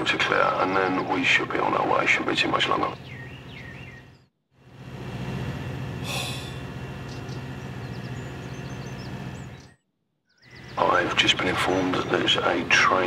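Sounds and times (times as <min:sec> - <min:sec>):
train humming: 0:04.6 - 0:09.6
short hiss: 0:06.0 - 0:06.6.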